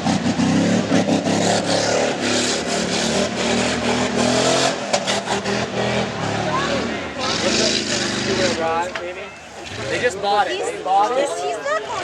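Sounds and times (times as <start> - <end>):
truck engine revving hard: 0.0 - 8.9, 9.6 - 10.2.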